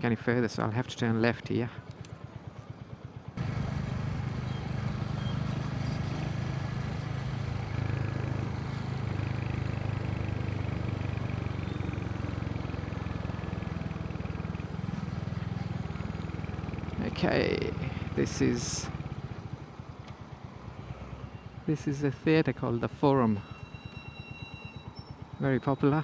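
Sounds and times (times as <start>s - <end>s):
motorcycle engine running: 1.8s - 21.7s.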